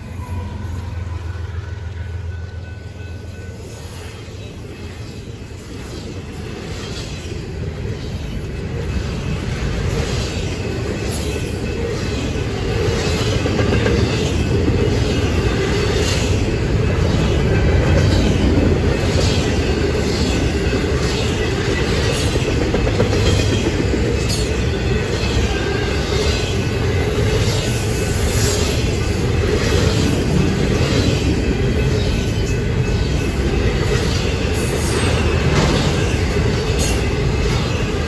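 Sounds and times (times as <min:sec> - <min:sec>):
rumble of train wheels on rail: 0:00.0 - 0:38.0.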